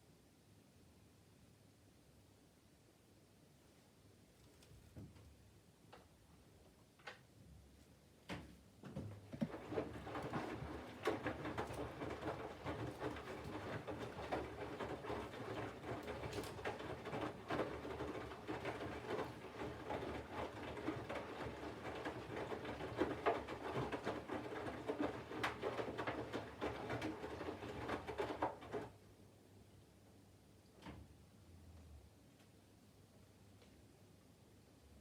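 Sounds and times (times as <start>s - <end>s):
washing machine sloshing: 9.1s - 29.0s.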